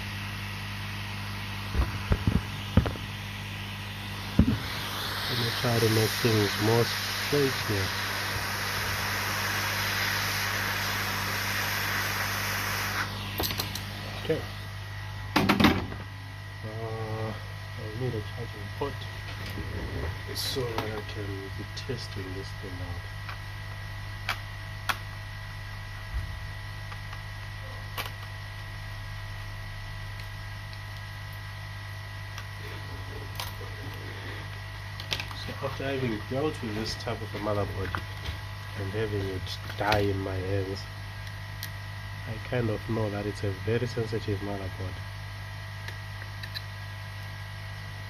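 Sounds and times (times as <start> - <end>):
low electrical hum: 0.0 - 48.0
hot air blower hiss: 0.9 - 16.0, 16.6 - 23.1, 31.1 - 41.0
sharp clicks of laptop parts: 45.8 - 46.7.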